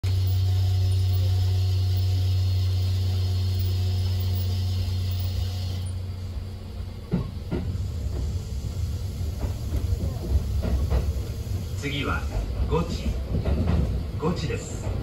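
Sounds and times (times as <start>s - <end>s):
electric train hum: 0.0s - 15.0s
high hiss: 0.1s - 6.5s, 7.6s - 13.1s.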